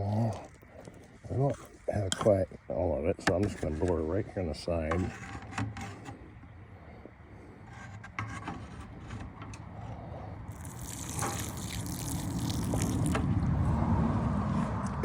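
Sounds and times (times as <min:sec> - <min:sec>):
bucket knocking and rubbing: 0:03.2 - 0:04.1, 0:04.8 - 0:06.2
liquid pouring onto soil: 0:10.5 - 0:13.2.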